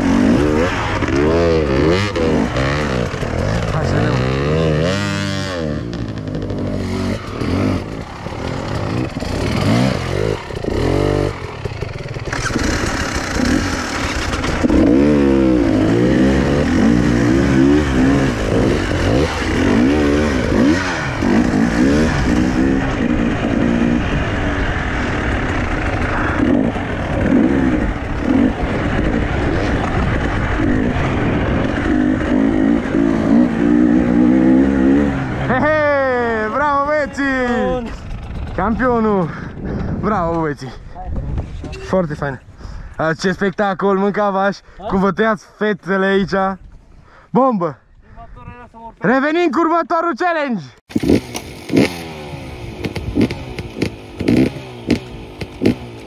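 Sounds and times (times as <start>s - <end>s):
motorcycle engine revving: 0.0s - 40.0s, 50.9s - 56.0s.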